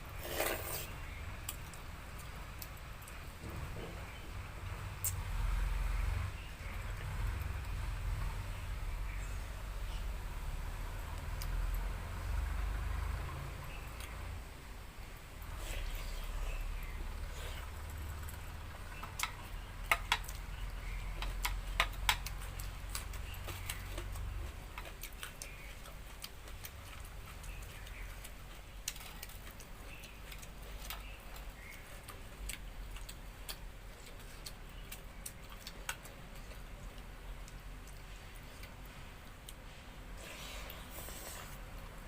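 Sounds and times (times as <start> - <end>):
person eating by hand: 0.0 - 4.2, 15.0 - 42.0.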